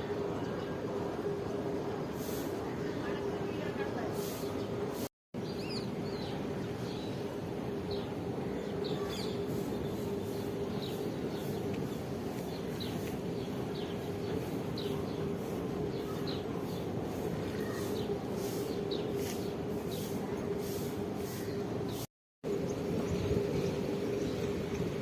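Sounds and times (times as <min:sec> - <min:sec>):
constant low hum: 0:00.0 - 0:25.0
small birds chirping: 0:05.4 - 0:22.0.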